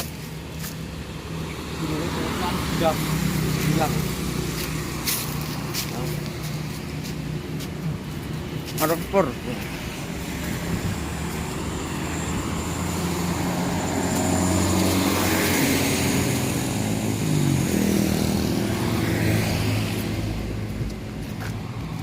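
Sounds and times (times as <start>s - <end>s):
vehicle engine passing by: 9.8s - 20.7s.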